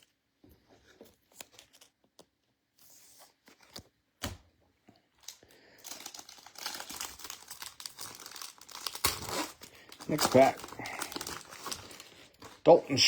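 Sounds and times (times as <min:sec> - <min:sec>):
wrapper crinkling and tearing: 0:05.2 - 0:13.0.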